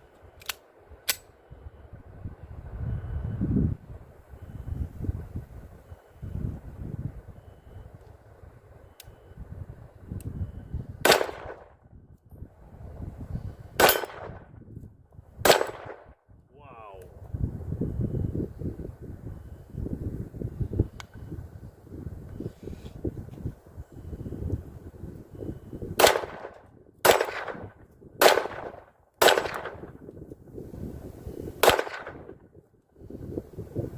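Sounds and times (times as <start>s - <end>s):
pistol shots: 11.0s - 11.7s, 13.8s - 14.4s, 15.4s - 16.1s, 26.0s - 29.9s, 31.6s - 32.4s.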